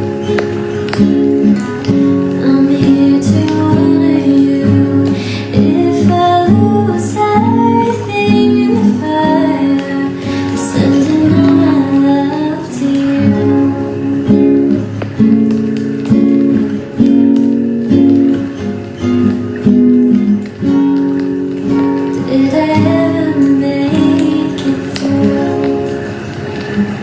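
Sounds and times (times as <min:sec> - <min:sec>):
acoustic guitar chords: 0:00.0 - 0:27.0
woman singing softly: 0:02.1 - 0:14.9, 0:21.9 - 0:26.2.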